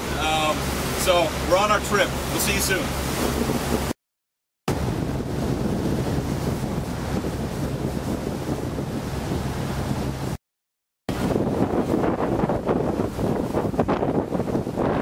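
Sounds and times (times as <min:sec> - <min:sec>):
boat engine hum: 0:00.0 - 0:04.0, 0:04.7 - 0:10.4, 0:11.1 - 0:15.0
rushing water: 0:00.0 - 0:04.0, 0:04.7 - 0:10.4, 0:11.1 - 0:15.0
wind buffeting microphone: 0:02.1 - 0:04.0, 0:04.7 - 0:10.4, 0:11.1 - 0:15.0.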